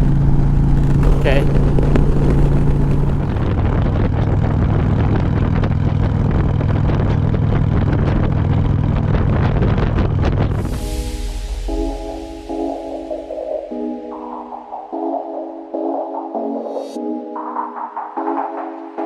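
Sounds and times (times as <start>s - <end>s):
motorcycle engine running: 0.0s - 10.6s
wind rushing over microphone: 0.0s - 13.2s.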